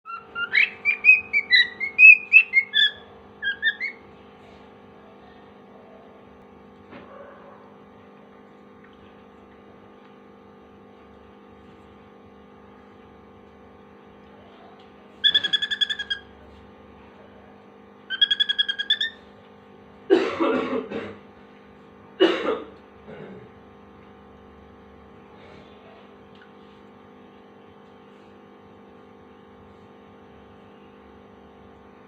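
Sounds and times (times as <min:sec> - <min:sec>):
harsh raspy bird calls: 0:00.1 - 0:04.1, 0:15.2 - 0:16.3, 0:18.1 - 0:19.2
bird mimicking pulsing beeps: 0:15.2 - 0:16.2, 0:18.1 - 0:19.2.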